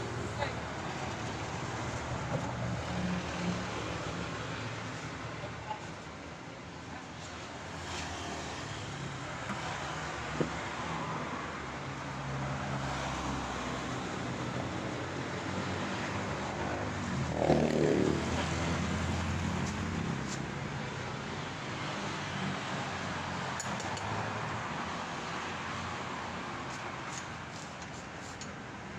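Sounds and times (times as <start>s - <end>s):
road traffic: 0.0s - 28.9s.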